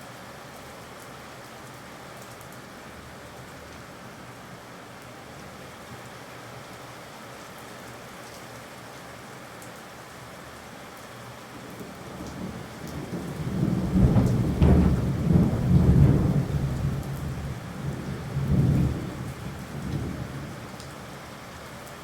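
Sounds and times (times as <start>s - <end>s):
steady rain falling: 0.0s - 22.0s
low thunder rumbling: 12.0s - 20.8s.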